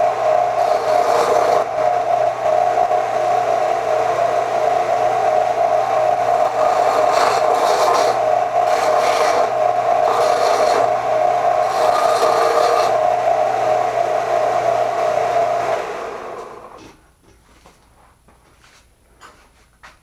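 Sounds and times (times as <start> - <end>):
metal scraping on grinder: 0.0 - 2.1, 5.8 - 13.9
electric grinder running: 0.0 - 16.8
motor spinning down: 0.0 - 16.8.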